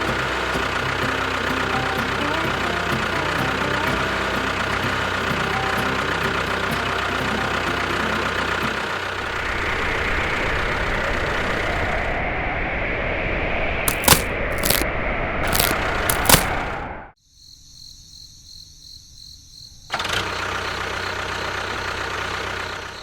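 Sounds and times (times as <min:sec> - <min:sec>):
engine idling: 0:00.0 - 0:09.5.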